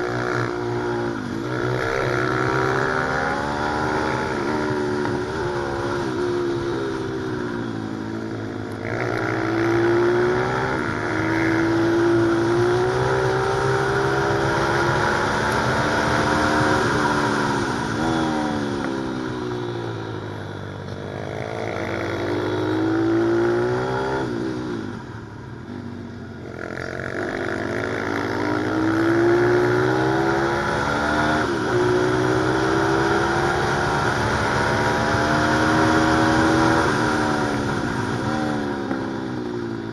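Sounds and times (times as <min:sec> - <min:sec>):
small motorcycle engine revving: 0:26.5 - 0:39.2.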